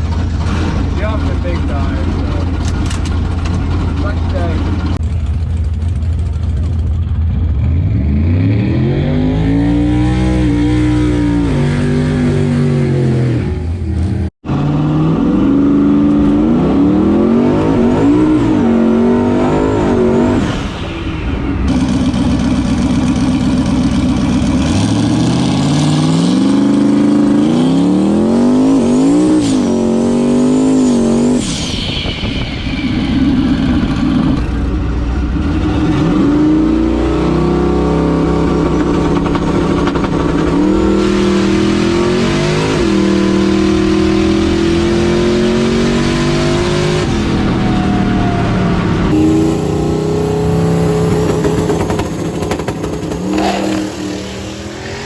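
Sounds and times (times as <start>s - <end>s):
truck engine revving hard: 0.0s - 5.0s, 7.3s - 55.0s
high turbo whistle: 47.3s - 55.0s.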